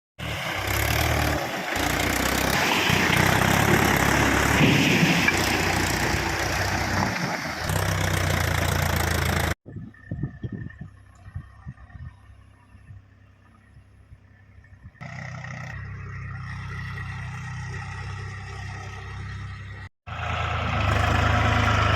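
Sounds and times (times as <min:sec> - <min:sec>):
tractor diesel engine running: 0:00.2 - 0:21.9.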